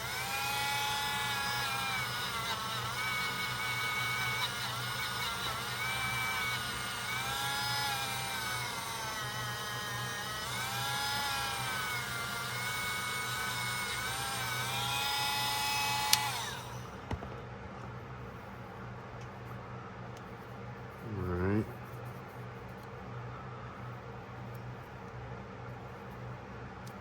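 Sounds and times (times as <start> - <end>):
buffing wheel motor whine: 0.0 - 17.2.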